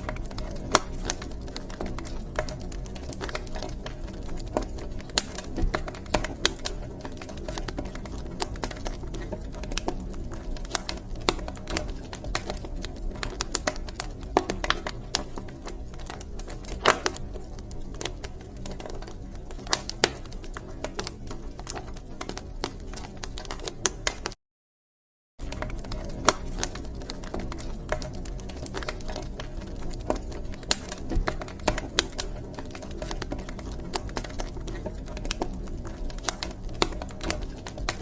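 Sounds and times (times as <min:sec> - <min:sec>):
wood fire crackling: 0:00.0 - 0:24.4, 0:25.4 - 0:38.0.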